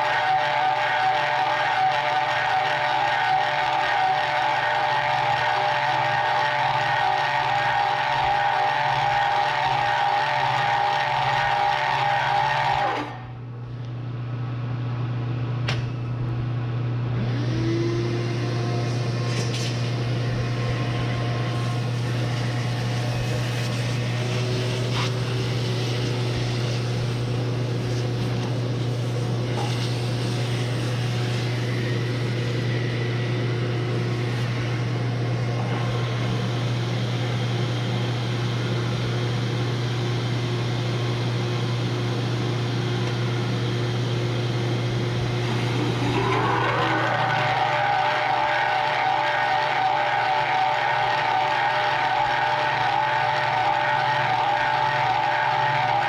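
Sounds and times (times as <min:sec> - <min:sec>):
hole saw cutting through steel: 0:00.0 - 0:13.2, 0:18.4 - 0:33.0, 0:45.3 - 0:56.0
electric motor hum: 0:00.0 - 0:13.4, 0:17.1 - 0:39.1, 0:43.0 - 0:56.0
motor spinning up with whine: 0:00.0 - 0:13.9, 0:16.0 - 0:56.0.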